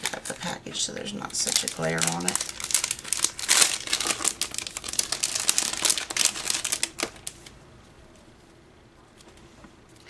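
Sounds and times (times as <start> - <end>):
plastic package crinkling: 1.2 - 7.6.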